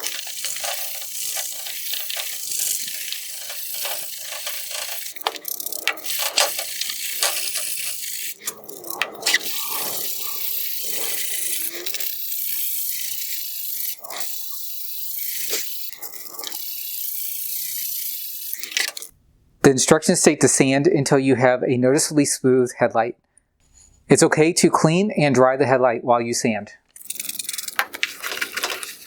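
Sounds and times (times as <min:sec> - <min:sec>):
wet sandpaper rubbing plastic: 0:00.0 - 0:19.1, 0:27.0 - 0:29.0.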